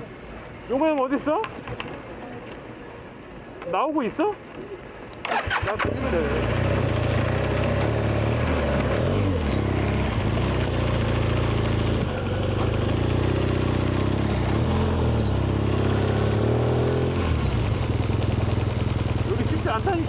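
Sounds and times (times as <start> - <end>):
motorcycle engine at low revs: 5.2 - 20.0.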